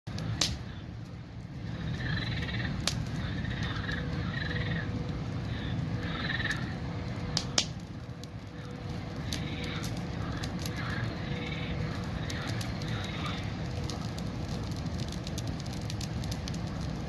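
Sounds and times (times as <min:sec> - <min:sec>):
sharp cracks: 0:00.1 - 0:17.0
steady low rumble: 0:00.1 - 0:17.0
frogs croaking: 0:01.6 - 0:07.6, 0:08.4 - 0:14.4.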